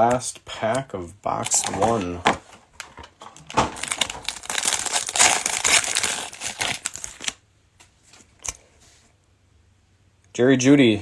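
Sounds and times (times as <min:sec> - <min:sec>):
plastic wrapper tearing and crinkling: 0:00.0 - 0:07.4.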